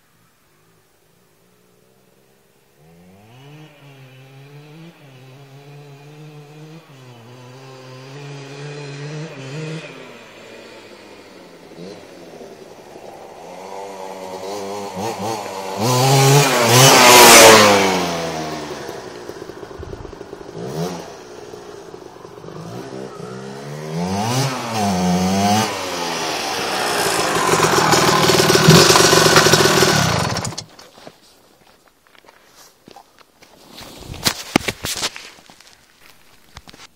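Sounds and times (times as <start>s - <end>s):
two-stroke motorcycle engine revving: 2.8s - 30.7s.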